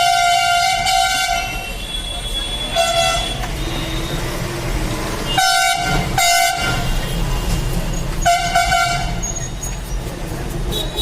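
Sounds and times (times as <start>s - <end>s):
vehicle horn honking: 0.0s - 4.2s, 5.3s - 7.5s, 8.2s - 9.4s, 10.7s - 11.0s
low rumble of traffic: 0.0s - 11.0s.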